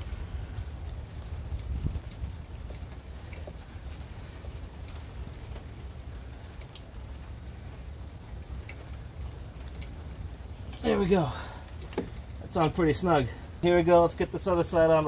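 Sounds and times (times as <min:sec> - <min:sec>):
steady low rumble: 0:00.0 - 0:14.6
rain falling and dripping: 0:00.0 - 0:15.0
light ticks: 0:00.2 - 0:05.7.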